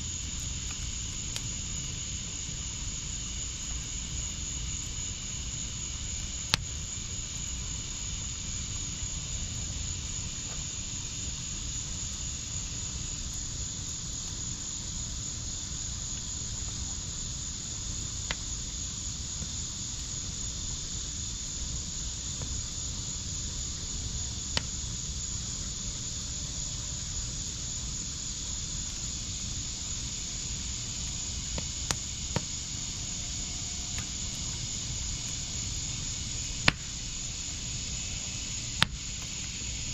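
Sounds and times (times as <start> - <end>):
high insect trill: 0.0 - 39.9
wood fire crackling and popping: 0.1 - 21.1, 28.9 - 33.2, 33.9 - 39.9.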